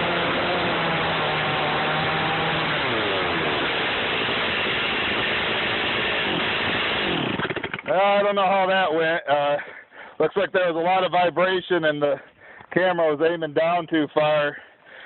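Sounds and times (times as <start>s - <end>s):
chainsaw running hard: 0.0s - 8.0s.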